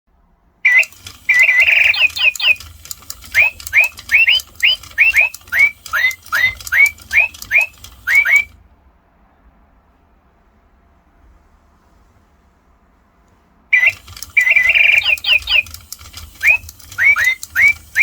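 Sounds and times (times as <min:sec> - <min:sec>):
clicking: 0:00.7 - 0:08.6, 0:13.8 - 0:18.0
electronic toy bird chirping: 0:00.7 - 0:08.6, 0:13.7 - 0:18.0.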